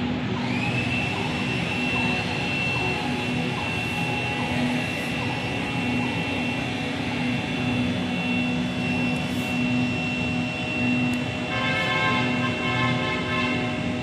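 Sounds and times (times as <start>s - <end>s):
outdoor ambient rumble: 0.0s - 14.0s
high-pitched tone: 0.4s - 14.0s.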